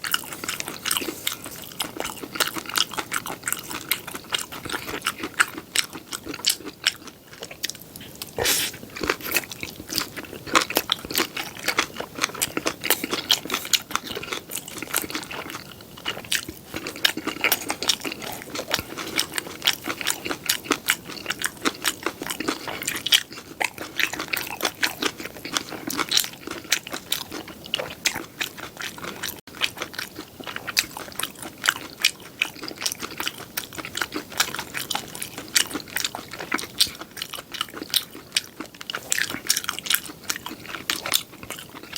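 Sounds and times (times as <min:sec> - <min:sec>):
chewing and crunching food: 0:00.0 - 0:41.9.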